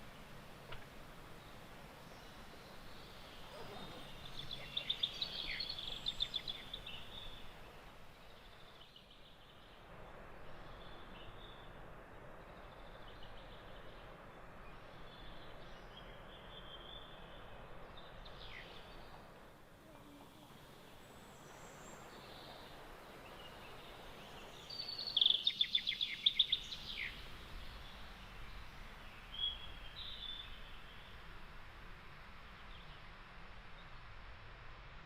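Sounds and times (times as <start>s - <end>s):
outdoor background hiss: 0.0s - 35.0s
birds singing and chirping: 2.2s - 9.1s.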